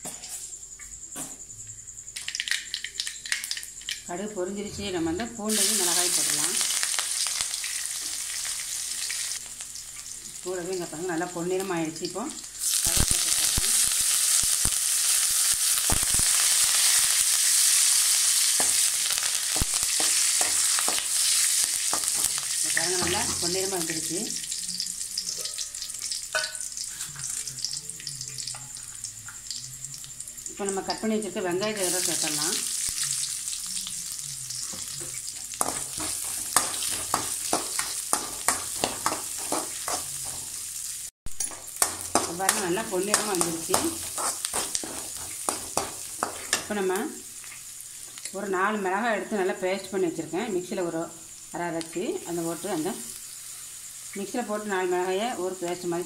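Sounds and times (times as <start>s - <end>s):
food sizzling in hot oil: 2.1s - 4.2s, 5.4s - 56.0s
metal spatula stirring: 34.7s - 40.6s, 41.3s - 46.8s.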